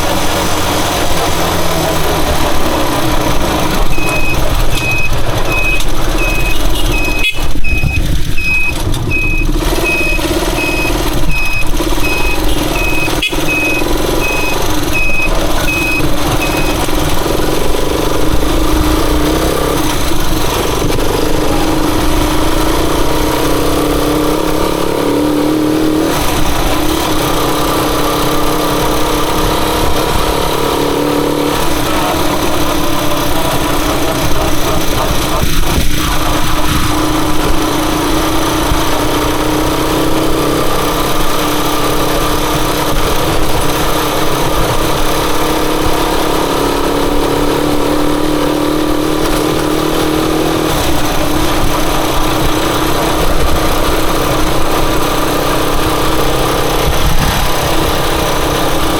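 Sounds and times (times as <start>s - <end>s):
motorcycle engine running: 0.0s - 58.9s
short electronic beeps: 3.8s - 17.0s.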